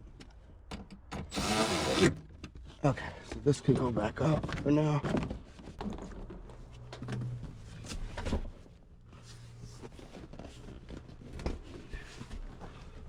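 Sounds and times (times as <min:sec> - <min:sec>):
car parts clicking and knocking: 0:00.1 - 0:01.4.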